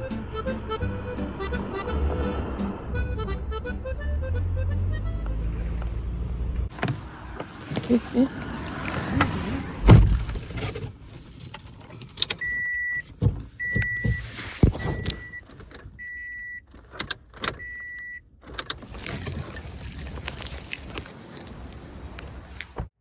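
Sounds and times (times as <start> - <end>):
car warning chime beeping: 12.0 - 18.7.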